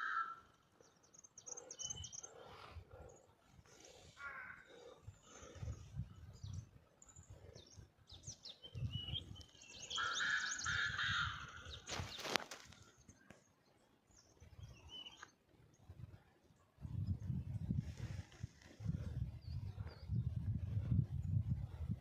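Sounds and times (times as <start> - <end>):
small birds chirping: 0.0 - 15.9
pheasant harsh call: 9.8 - 12.3.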